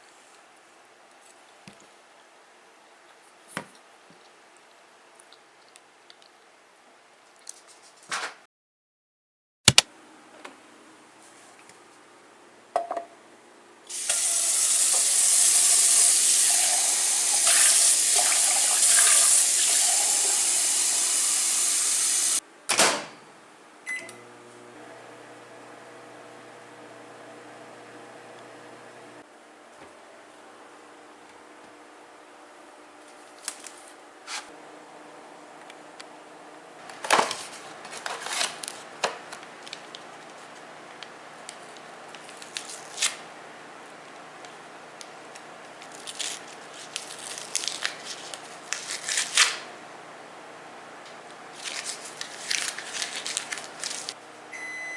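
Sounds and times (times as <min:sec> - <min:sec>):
tap water running into sink: 0:13.9 - 0:22.4.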